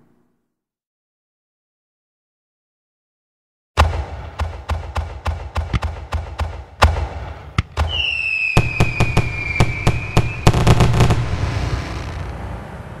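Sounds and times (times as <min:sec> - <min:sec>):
crackling firework bangs: 0:03.8 - 0:12.4
firework bangs: 0:03.8 - 0:12.5
whistling firework: 0:07.8 - 0:12.4.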